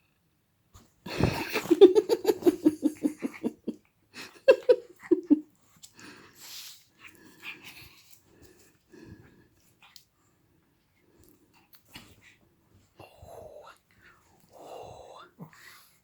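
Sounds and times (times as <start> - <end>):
dog breathing softly: 5.6 - 16.0.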